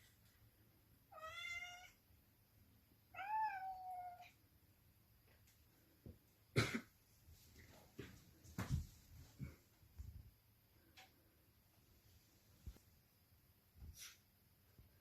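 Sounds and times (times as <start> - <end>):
cat meowing: 1.1 - 2.0, 3.1 - 4.4.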